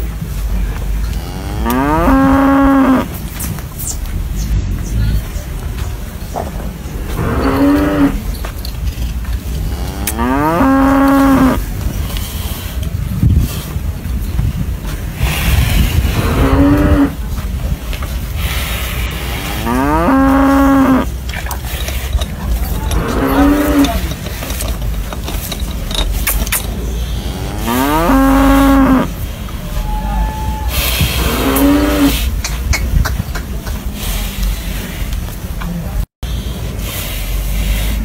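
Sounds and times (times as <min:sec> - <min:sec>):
steady low rumble: 0:00.0 - 0:38.0
cattle mooing: 0:01.1 - 0:03.1, 0:07.1 - 0:08.2, 0:09.6 - 0:11.6, 0:16.2 - 0:17.2, 0:19.4 - 0:21.1, 0:22.7 - 0:24.1, 0:27.0 - 0:29.2.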